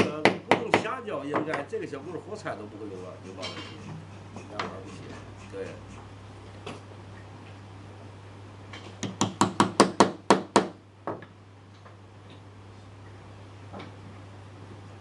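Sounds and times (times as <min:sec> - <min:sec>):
sharp knocks on wood: 0:00.0 - 0:01.7, 0:09.0 - 0:11.3.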